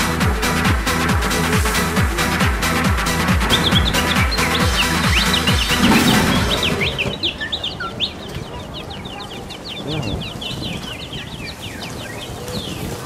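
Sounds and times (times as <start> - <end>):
electronic dance music: 0.0 - 7.2
quick high bird-like chirps: 3.4 - 12.9.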